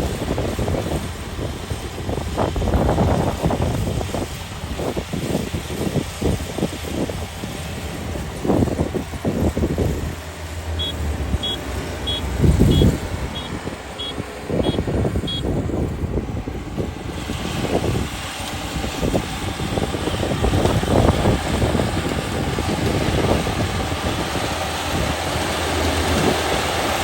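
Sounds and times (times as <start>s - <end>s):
combine harvester running: 0.0s - 27.0s
electronic warning beeps: 10.8s - 15.5s.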